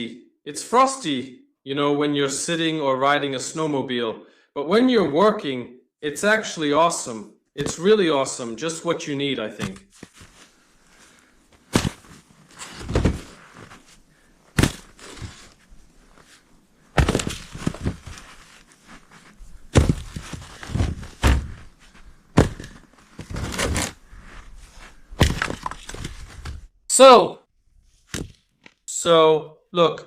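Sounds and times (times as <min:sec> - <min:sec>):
crunching: 0:09.7 - 0:26.7
firewood breaking: 0:14.6 - 0:15.5, 0:17.0 - 0:18.3, 0:19.7 - 0:21.6, 0:25.2 - 0:26.5.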